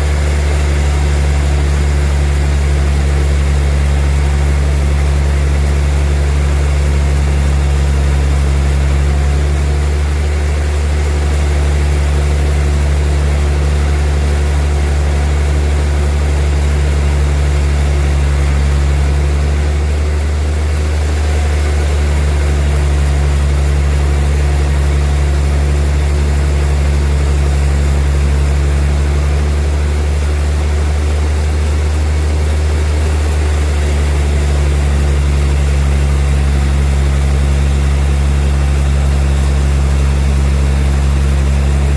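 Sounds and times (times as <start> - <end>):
sawmill machinery humming: 0.0 - 41.9.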